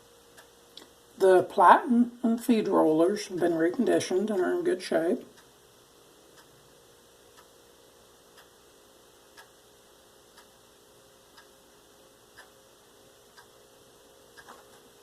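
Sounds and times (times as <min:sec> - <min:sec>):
low steady hum: 0:00.0 - 0:15.0
clock ticking: 0:00.3 - 0:05.6, 0:06.3 - 0:07.6, 0:08.3 - 0:09.6, 0:10.3 - 0:12.6, 0:13.2 - 0:13.7, 0:14.3 - 0:15.0.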